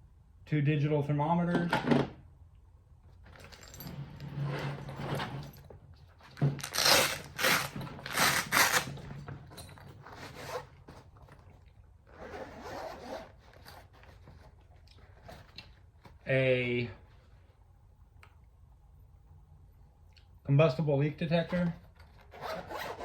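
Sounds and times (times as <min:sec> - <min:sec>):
zipper rasping: 0:06.6 - 0:09.0, 0:10.1 - 0:10.8, 0:12.1 - 0:14.2, 0:22.2 - 0:23.0.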